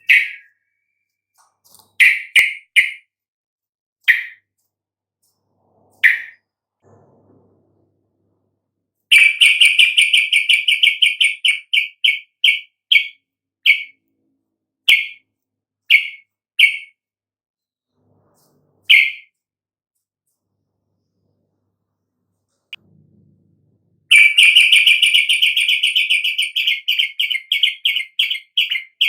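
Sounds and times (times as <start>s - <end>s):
bird chirping: 0.0s - 3.1s, 4.0s - 4.7s, 5.8s - 6.5s, 9.1s - 14.1s, 14.8s - 15.2s, 15.8s - 17.0s, 18.4s - 19.4s, 24.1s - 29.0s.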